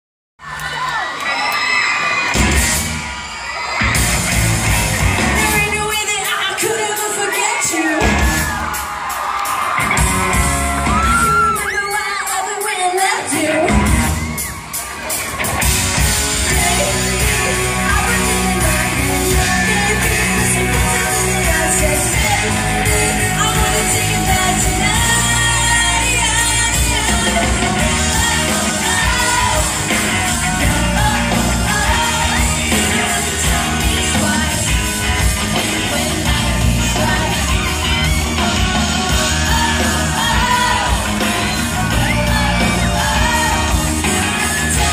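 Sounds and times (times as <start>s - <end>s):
crowd yelling: 0.4s - 44.9s
live pop-rock band: 0.4s - 44.9s
person singing lead vocal: 16.1s - 44.9s.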